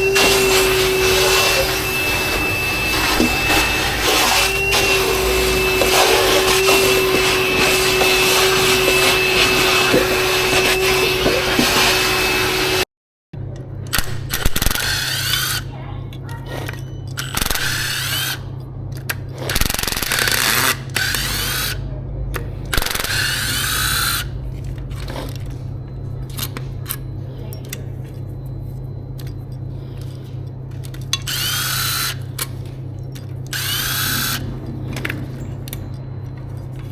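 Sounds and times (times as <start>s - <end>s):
electric tool whining: 0.0s - 12.9s, 13.9s - 15.7s, 16.6s - 21.8s, 22.7s - 24.4s, 30.8s - 32.6s, 33.4s - 36.1s.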